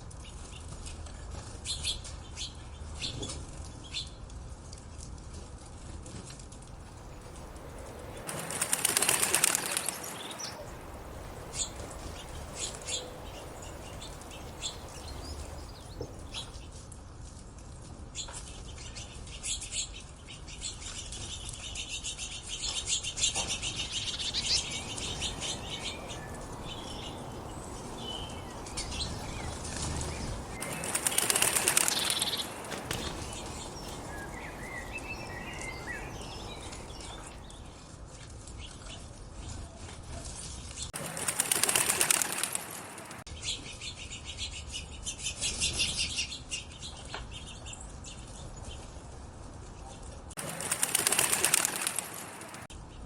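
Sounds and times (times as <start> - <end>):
bird wings flapping: 6.6 - 16.7, 23.4 - 37.8, 41.0 - 43.2, 50.4 - 52.7.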